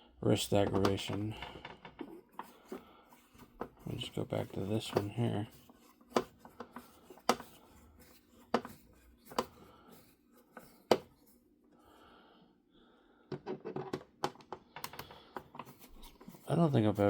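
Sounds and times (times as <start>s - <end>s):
quiet handling noise: 0.3s - 11.4s.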